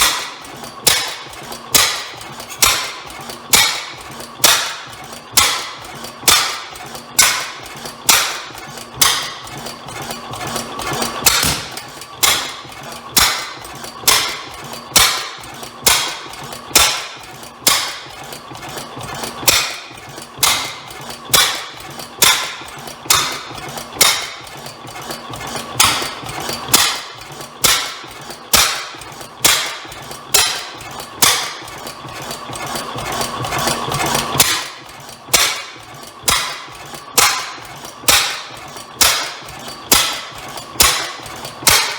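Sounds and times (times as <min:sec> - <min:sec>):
antique engine turning over: 0:00.0 - 0:41.9
steady mechanical hum: 0:00.0 - 0:41.9
sharp bang: 0:11.3 - 0:12.4.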